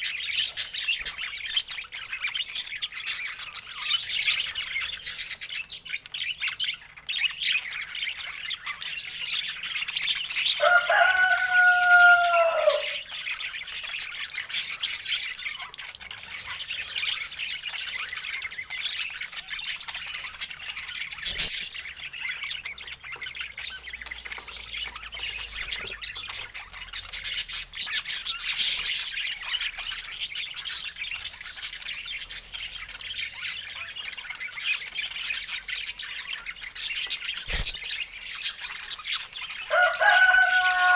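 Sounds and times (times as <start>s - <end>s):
budgies chattering and chirping: 0.0s - 40.9s
lower bird call: 10.6s - 13.1s.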